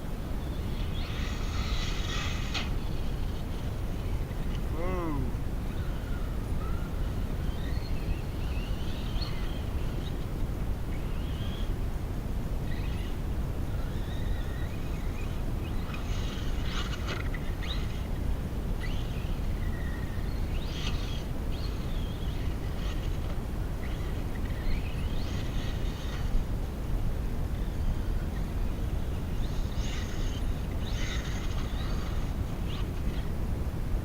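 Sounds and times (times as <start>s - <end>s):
electric motor whining: 27.5s - 33.3s.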